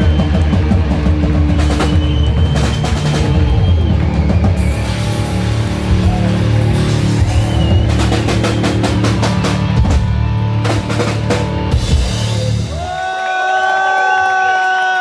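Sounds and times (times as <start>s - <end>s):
hard rock band playing live: 0.0s - 12.9s
heavy drum strikes: 0.0s - 13.0s.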